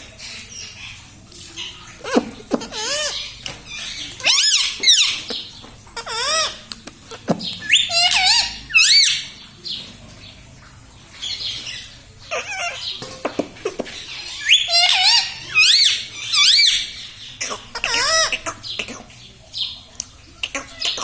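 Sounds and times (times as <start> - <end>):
parrot making squeaky calls: 1.6 - 6.7, 7.6 - 9.3, 12.3 - 13.0, 13.7 - 18.7.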